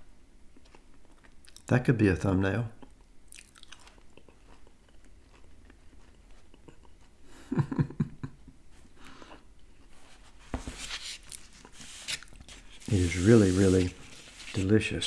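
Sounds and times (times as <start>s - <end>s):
quiet chewing: 0.5s - 1.7s, 2.8s - 7.2s.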